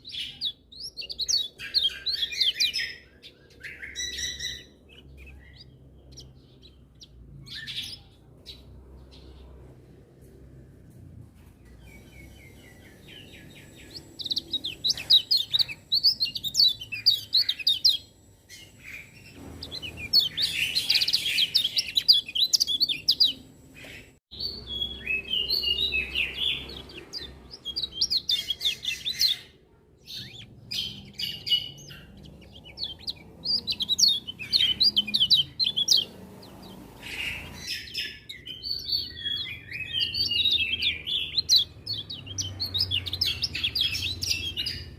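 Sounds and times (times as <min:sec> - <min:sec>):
white-eye bird twittering: 0:12.2 - 0:24.1, 0:30.1 - 0:44.9.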